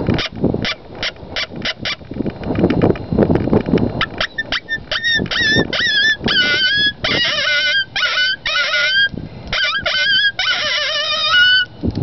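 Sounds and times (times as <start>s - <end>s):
coyote howler call yips and howls: 4.1s - 11.7s.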